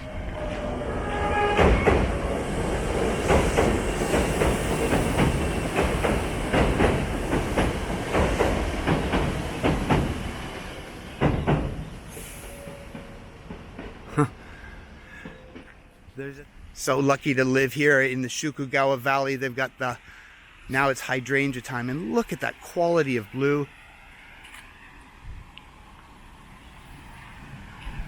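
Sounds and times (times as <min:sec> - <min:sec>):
train wheels clacking over rail joints: 0:01.5 - 0:14.3.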